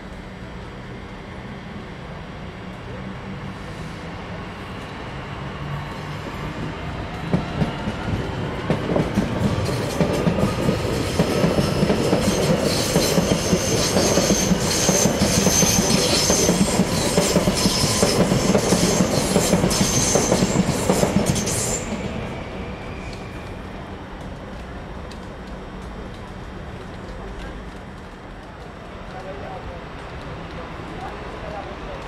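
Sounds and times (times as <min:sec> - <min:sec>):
train wheels clattering: 0:07.3 - 0:22.1.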